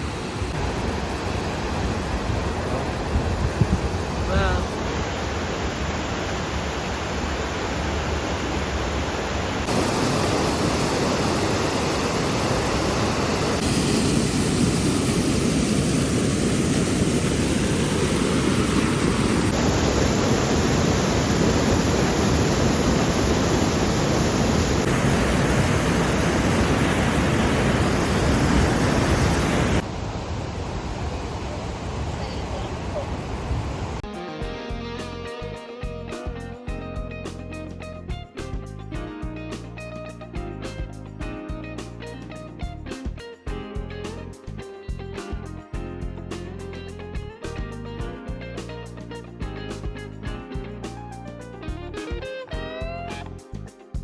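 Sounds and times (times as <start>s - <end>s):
water rushing down waterfalls: 0.0s - 34.0s.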